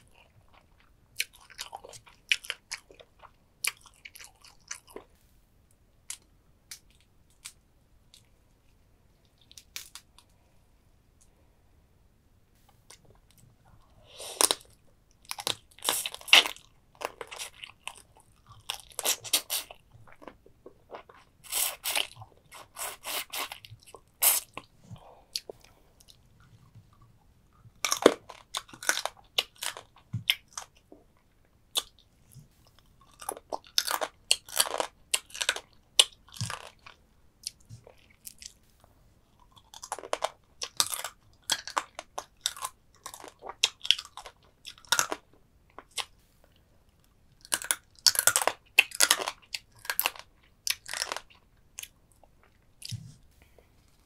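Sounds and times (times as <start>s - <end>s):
crunching and chewing crab: 0.0s - 5.1s, 14.3s - 24.7s, 26.9s - 38.6s, 39.3s - 46.1s, 47.0s - 53.0s.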